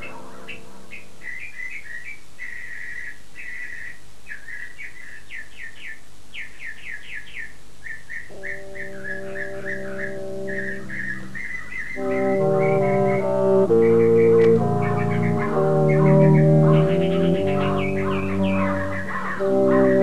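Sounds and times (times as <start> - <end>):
sustained music chords: 0.0 - 1.2, 8.3 - 20.0
bird chirping and trilling: 0.0 - 20.0.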